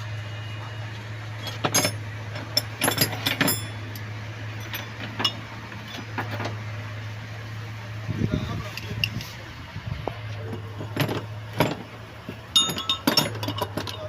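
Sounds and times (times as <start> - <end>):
metal tools clinking: 1.4 - 6.5, 12.5 - 14.0.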